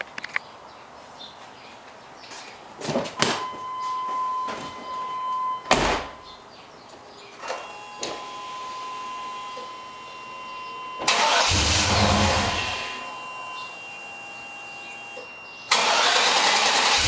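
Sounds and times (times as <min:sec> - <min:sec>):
car door slamming shut: 0:05.7 - 0:06.2.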